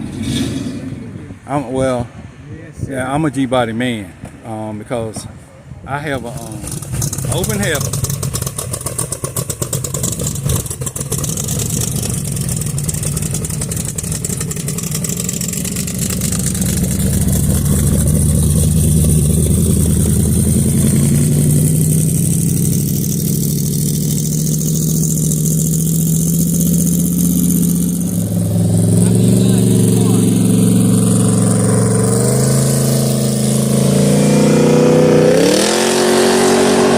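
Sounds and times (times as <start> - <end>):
engine revving through open headers: 6.0 - 36.9.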